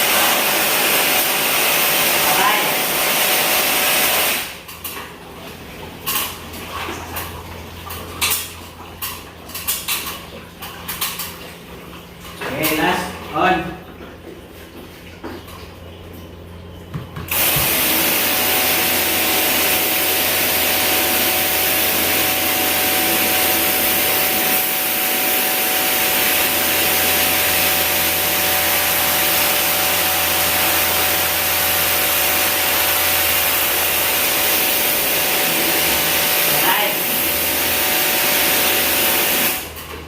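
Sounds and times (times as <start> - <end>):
cleaning machine running: 0.0 - 8.9, 16.9 - 40.0.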